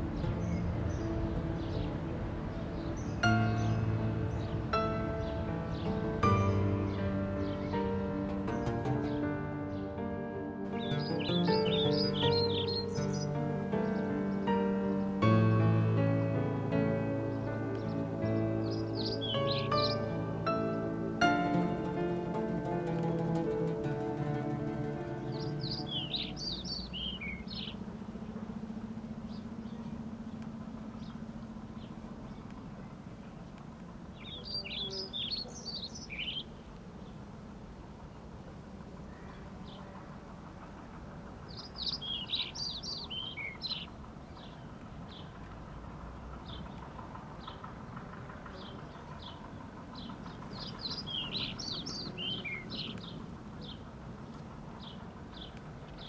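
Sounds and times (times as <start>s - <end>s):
small birds chirping: 0.0s - 10.0s, 10.7s - 37.3s, 39.0s - 56.0s
low background noise: 0.0s - 56.0s
low steady hum: 0.0s - 56.0s
birds chirping and whistling: 10.8s - 15.0s, 17.3s - 21.6s, 25.2s - 27.8s, 34.2s - 36.5s, 41.5s - 44.6s, 50.0s - 53.8s.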